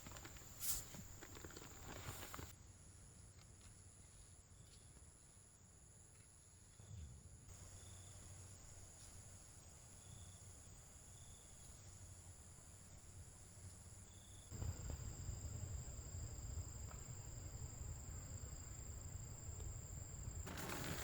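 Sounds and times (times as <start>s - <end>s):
quiet background rumble: 14.5s - 21.0s.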